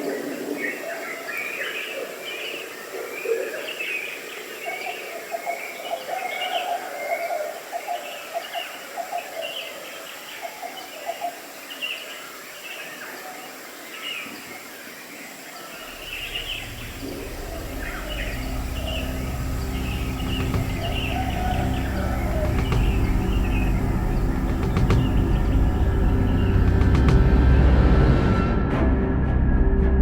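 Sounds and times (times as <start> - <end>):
birds chirping and calling: 15.7 - 27.5
low steady hum: 15.8 - 28.9.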